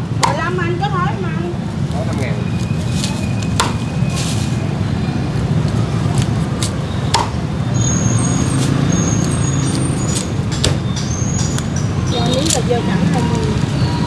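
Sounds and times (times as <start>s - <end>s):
street traffic rumble: 0.0s - 14.0s
sharp knocks: 3.6s - 3.9s, 7.1s - 7.5s, 9.8s - 11.9s.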